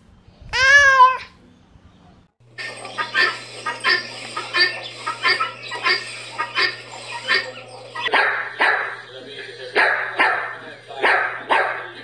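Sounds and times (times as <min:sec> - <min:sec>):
guineafowl harsh calls: 0:02.5 - 0:09.1
dog barking: 0:08.1 - 0:09.0, 0:09.8 - 0:12.0.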